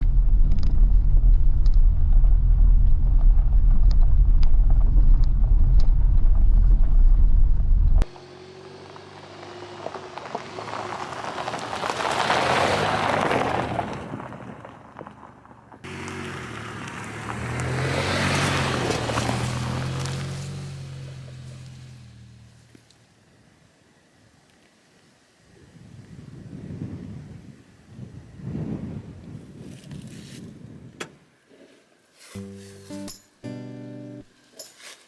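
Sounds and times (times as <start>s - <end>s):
moving vehicle rumble: 0.0s - 23.5s.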